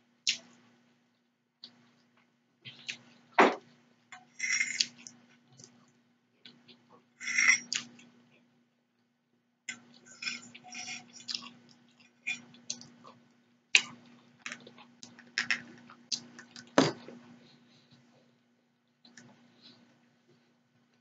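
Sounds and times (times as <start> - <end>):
faint steady hum: 0.0 - 21.0
person chewing: 4.4 - 8.1, 9.7 - 17.1.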